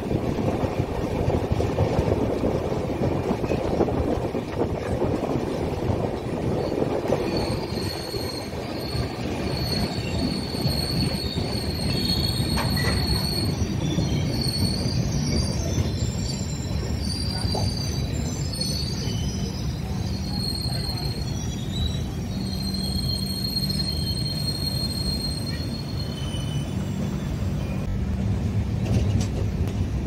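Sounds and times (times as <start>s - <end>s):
train rumbling along track: 0.0s - 30.0s
metallic wheel squeals: 6.6s - 27.9s.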